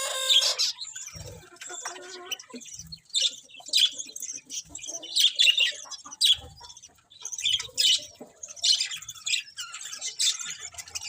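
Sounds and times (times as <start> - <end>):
budgerigars chirping: 0.0 - 11.0.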